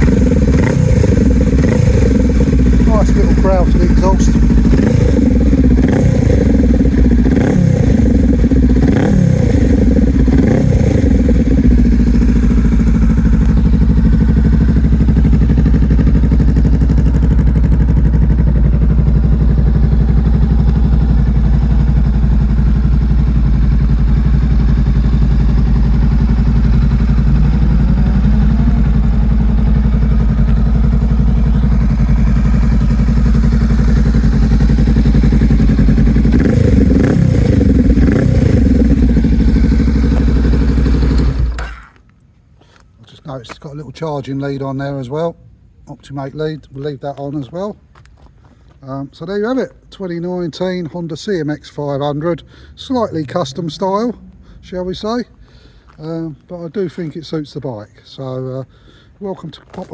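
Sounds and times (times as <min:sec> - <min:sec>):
motorcycle engine revving and idling: 0:00.0 - 0:42.0.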